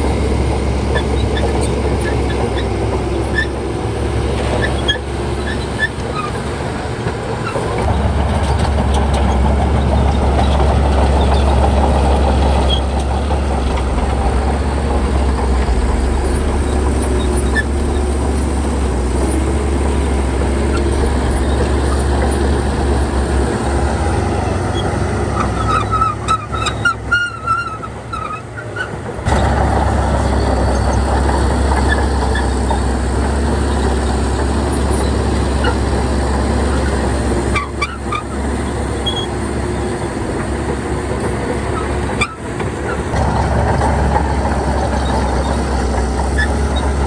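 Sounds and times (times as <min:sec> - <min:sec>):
bulldozer diesel engine running: 0:00.0 - 0:47.0
short metallic squeaks and clicks: 0:00.9 - 0:03.6, 0:04.3 - 0:06.5, 0:07.4 - 0:14.1, 0:15.1 - 0:18.6, 0:24.7 - 0:29.2, 0:36.7 - 0:40.0, 0:41.7 - 0:43.2, 0:44.4 - 0:47.0.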